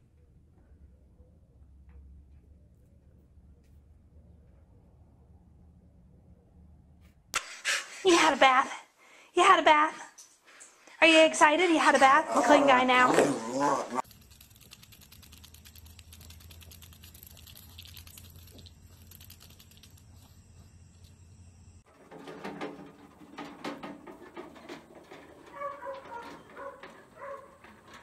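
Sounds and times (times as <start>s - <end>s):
low hum: 0.0s - 7.3s, 13.8s - 21.9s.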